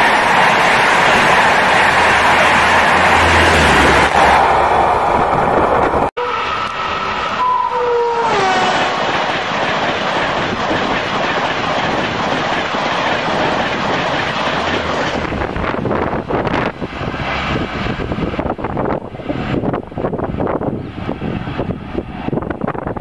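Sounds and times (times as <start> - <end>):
high-speed train rushing past: 0.0 - 23.0
two-tone train horn: 6.2 - 9.0.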